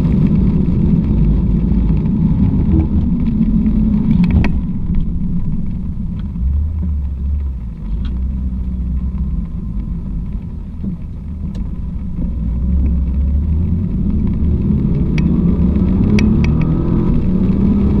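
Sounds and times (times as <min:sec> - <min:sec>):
car engine droning: 0:00.0 - 0:18.0.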